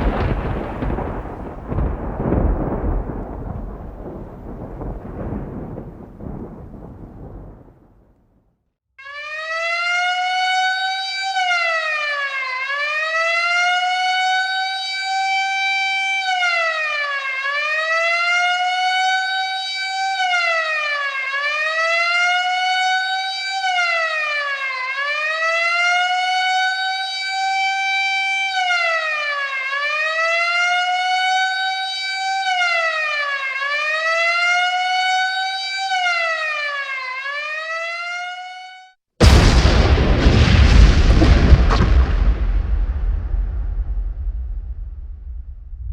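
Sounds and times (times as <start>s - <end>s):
siren wailing: 9.0s - 42.2s.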